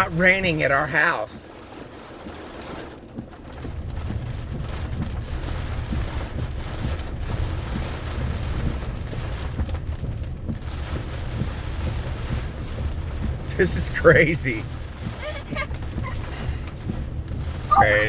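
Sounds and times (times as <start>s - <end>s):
heavy rain pouring: 0.0s - 18.0s
wind buffeting microphone: 14.5s - 18.0s.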